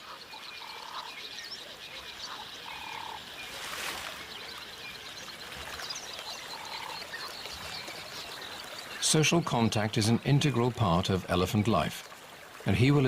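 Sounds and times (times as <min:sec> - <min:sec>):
frog calling: 0:00.0 - 0:03.5, 0:06.2 - 0:09.0.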